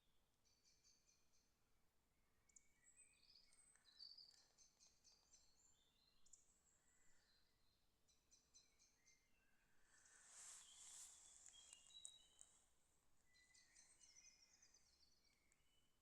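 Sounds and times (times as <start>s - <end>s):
small birds chirping and trilling: 2.5s - 16.0s
background hiss: 9.8s - 12.8s.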